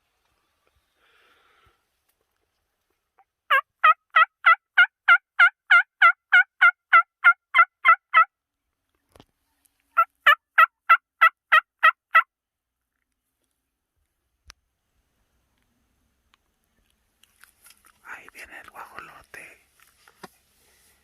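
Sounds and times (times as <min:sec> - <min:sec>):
turkey yelping: 0:03.5 - 0:08.3, 0:10.0 - 0:12.2.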